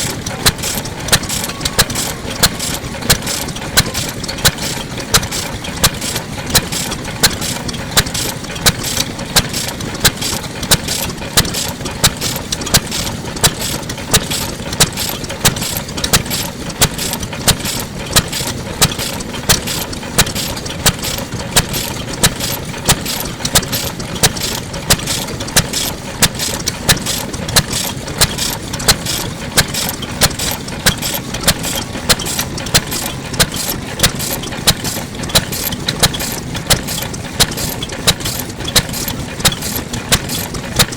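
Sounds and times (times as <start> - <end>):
mechanical clicking and clatter: 0.0 - 40.9
stationary engine running: 0.0 - 40.9.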